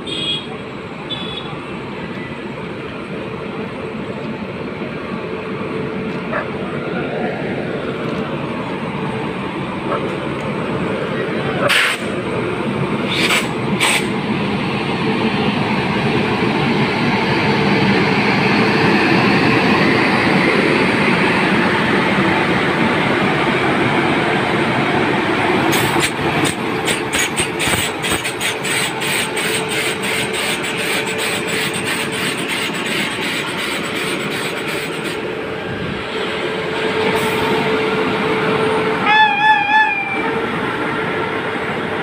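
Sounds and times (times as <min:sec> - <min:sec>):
passing train roar: 0:00.0 - 0:42.0
wheels clattering over rail joints: 0:25.7 - 0:35.2.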